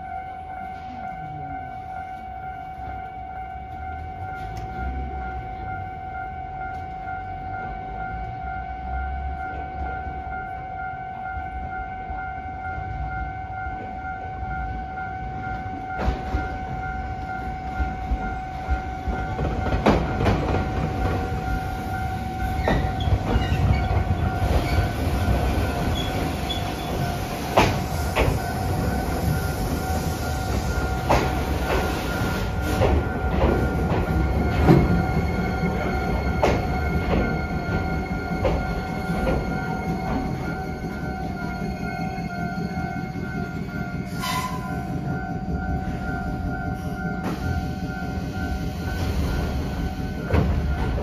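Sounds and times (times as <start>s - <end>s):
electric train rumbling: 0.0s - 51.0s
steady warning tone: 0.0s - 51.0s
wheels clacking over rail joints: 17.8s - 46.0s.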